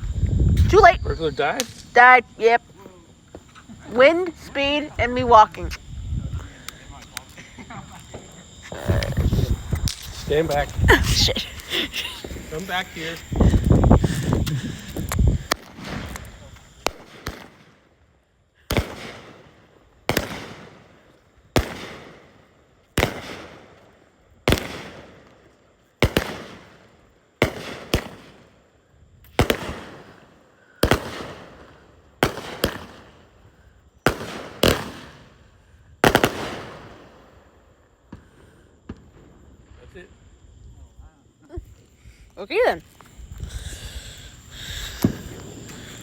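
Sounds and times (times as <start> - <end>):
fireworks bangs: 6.5 - 17.7, 18.7 - 20.8, 29.4 - 30.2, 30.8 - 33.3, 34.0 - 35.4, 36.0 - 37.4, 38.1 - 39.6, 43.5 - 46.0.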